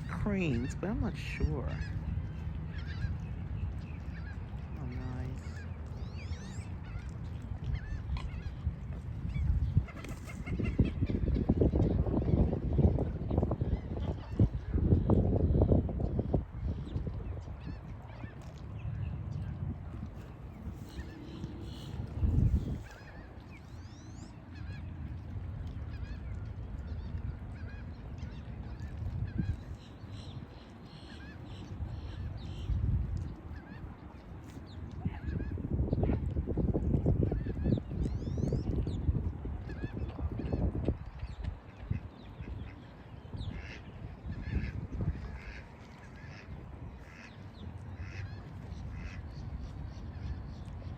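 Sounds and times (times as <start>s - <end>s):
steady low rumble: 0.0s - 50.9s
waterfowl honking: 43.5s - 49.3s.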